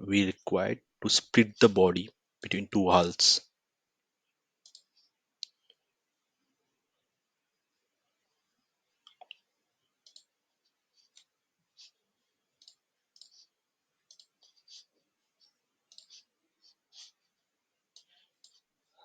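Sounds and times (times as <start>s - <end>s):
computer mouse clicks: 4.6s - 5.8s, 9.1s - 10.4s, 12.6s - 13.4s, 14.0s - 14.5s, 15.9s - 16.3s.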